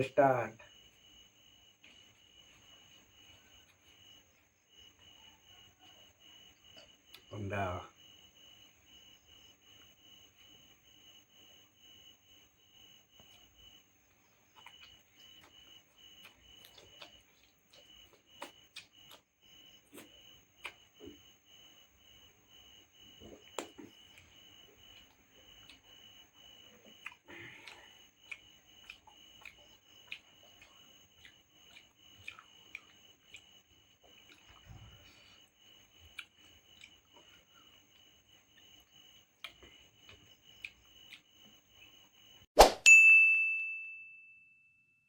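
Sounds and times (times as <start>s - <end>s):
cricket chirping: 0.0s - 42.5s
chewing clicks and smacks: 6.5s - 7.3s, 13.1s - 21.8s, 23.1s - 34.9s, 35.5s - 42.2s.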